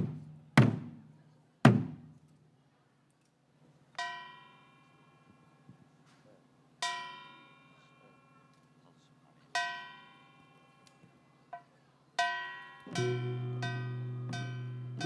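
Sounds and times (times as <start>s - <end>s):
ringing instrument notes: 12.6s - 15.0s.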